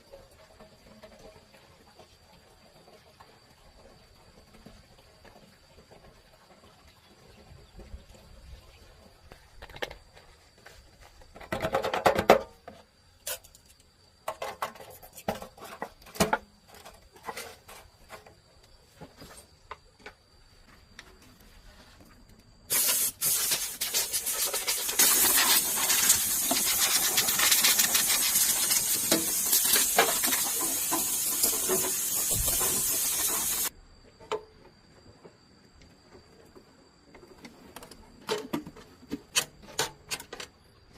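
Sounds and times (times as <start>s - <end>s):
pressurized spraying hiss: 22.7s - 33.7s.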